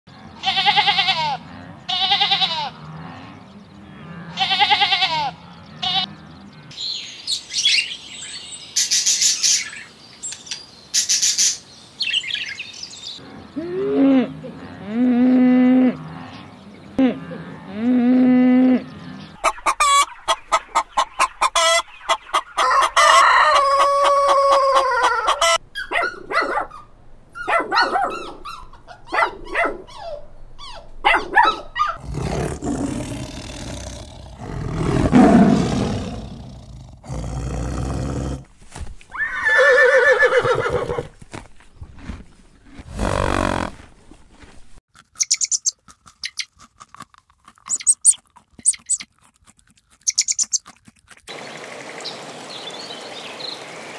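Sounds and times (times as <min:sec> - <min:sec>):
cow mooing: 0:00.8 - 0:06.7, 0:13.2 - 0:19.3
rooster crowing: 0:22.6 - 0:25.6
tiger growling: 0:32.0 - 0:38.5, 0:42.7 - 0:43.8.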